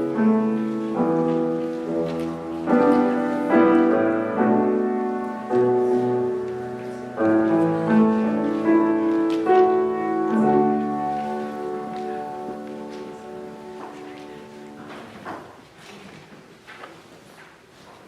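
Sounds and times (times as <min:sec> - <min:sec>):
solo piano slow chords: 0:00.0 - 0:15.2.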